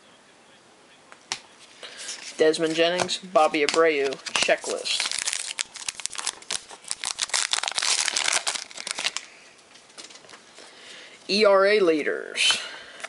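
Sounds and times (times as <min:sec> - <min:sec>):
cards rustling: 0:01.6 - 0:10.7
wrapper crinkling and tearing: 0:03.6 - 0:10.4.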